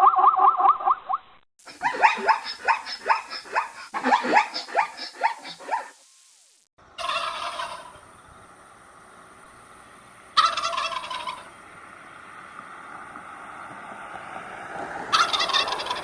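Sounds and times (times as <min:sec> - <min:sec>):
noisy animal sound: 0:01.6 - 0:06.0, 0:06.8 - 0:16.0
turkeys gobbling: 0:01.7 - 0:05.3, 0:06.8 - 0:14.0, 0:14.9 - 0:16.0.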